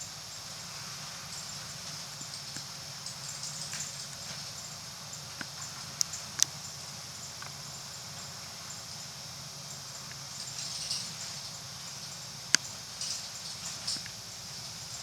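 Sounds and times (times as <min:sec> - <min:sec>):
constant hiss: 0:00.0 - 0:15.0
light rattles: 0:10.0 - 0:15.0.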